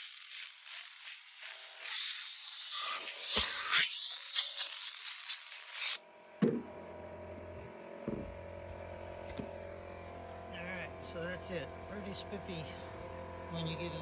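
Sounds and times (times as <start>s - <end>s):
hissing spray: 0.0s - 6.0s.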